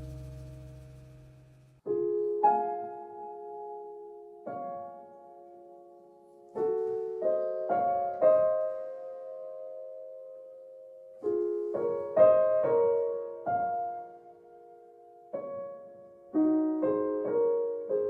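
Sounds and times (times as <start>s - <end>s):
slow gentle piano chords: 0.0s - 18.0s.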